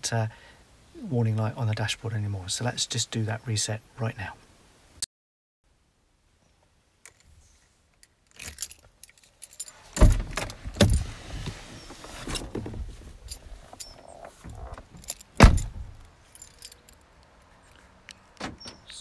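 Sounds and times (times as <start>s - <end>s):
keys jangling: 8.2s - 11.0s, 13.2s - 17.5s
car door shutting: 10.0s - 13.0s, 14.3s - 16.0s, 18.4s - 18.9s
car door opening thump: 15.4s - 15.9s.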